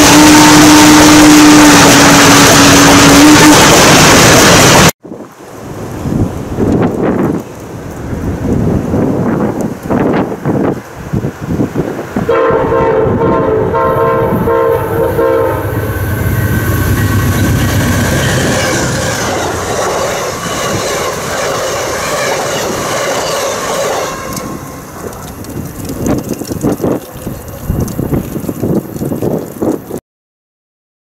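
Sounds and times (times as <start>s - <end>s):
locomotive horn: 0.0s - 4.6s, 12.3s - 24.9s
diesel locomotive engine rumble: 0.0s - 30.0s
passenger cars rolling by: 13.4s - 29.9s.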